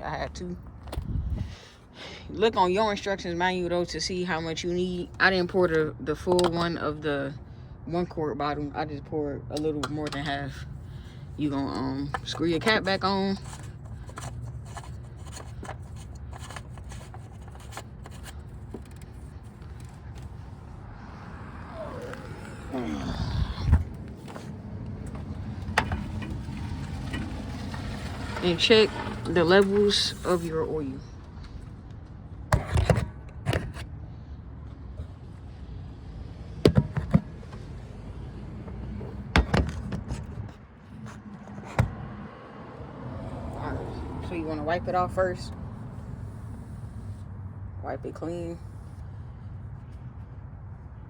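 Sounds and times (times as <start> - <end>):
low steady rumble: 10.1 - 32.4
plastic cap clicking and scraping: 12.0 - 20.4
steady low rumble: 18.4 - 27.4.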